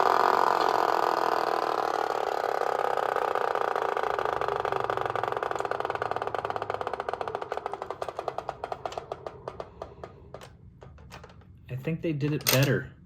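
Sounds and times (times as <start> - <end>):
toy flywheel motor clattering: 0.0 - 11.4.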